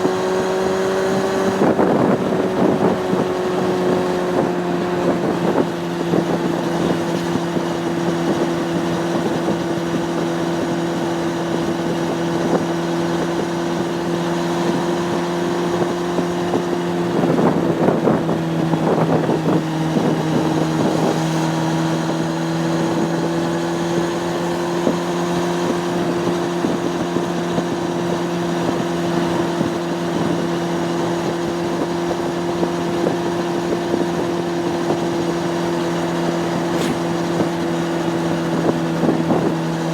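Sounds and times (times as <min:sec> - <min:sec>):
motorcycle engine cruising: 0:00.0 - 0:39.9
wind on microphone: 0:00.0 - 0:39.9
rough uneven noise: 0:36.1 - 0:38.0.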